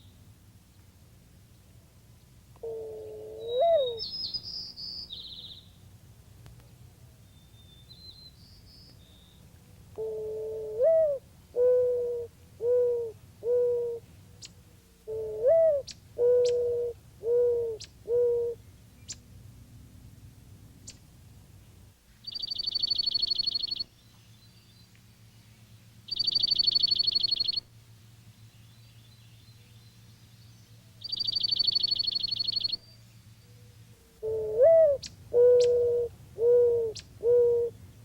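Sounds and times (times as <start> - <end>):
mourning dove cooing: 2.6 - 4.1, 9.4 - 19.2, 33.4 - 37.9
songbird trills: 3.4 - 5.8, 7.2 - 10.1, 14.3 - 19.3, 22.1 - 27.7, 28.3 - 38.0.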